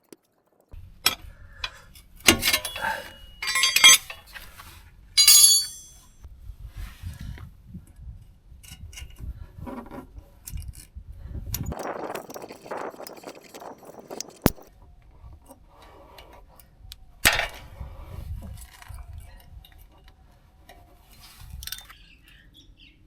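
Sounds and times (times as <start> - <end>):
metal hand tools clinking: 2.3 - 4.3, 5.2 - 6.0.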